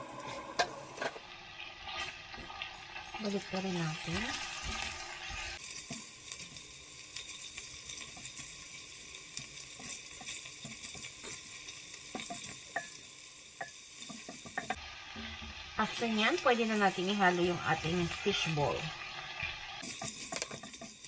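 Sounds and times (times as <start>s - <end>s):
food sizzling in hot oil: 0.0s - 21.0s
spatula stirring and scraping: 4.1s - 15.6s, 18.1s - 21.0s.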